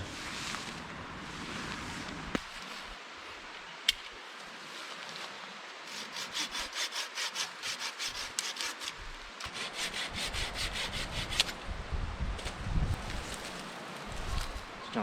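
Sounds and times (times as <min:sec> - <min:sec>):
hand saw cutting wood: 0:05.8 - 0:11.6.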